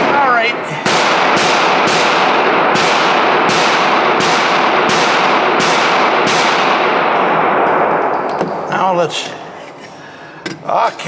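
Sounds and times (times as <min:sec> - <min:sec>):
handgun shots with echo: 0:00.9 - 0:08.7.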